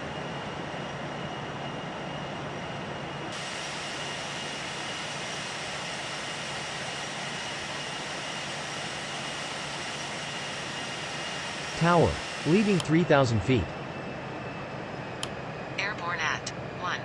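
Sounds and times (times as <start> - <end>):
faint steady whines: 0.0 - 17.0
aircraft cabin jet rush: 3.3 - 13.7.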